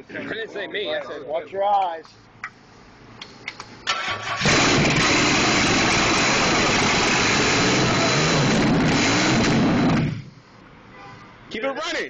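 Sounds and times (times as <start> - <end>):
car engine cranking and running: 3.8 - 10.4.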